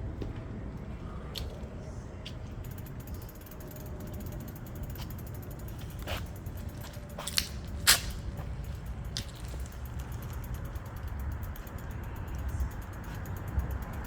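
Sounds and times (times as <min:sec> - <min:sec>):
rapid mechanical ticking: 0:02.4 - 0:14.0.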